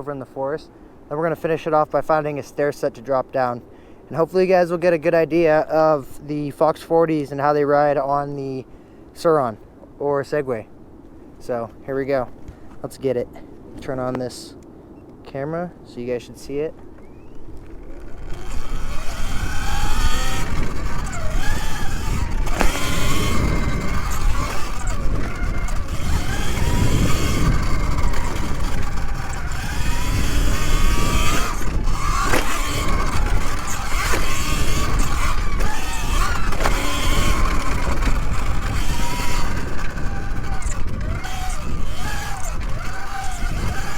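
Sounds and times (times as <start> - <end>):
wind rumble on microphone: 16.1 - 43.9
electric motor whine: 17.0 - 43.9.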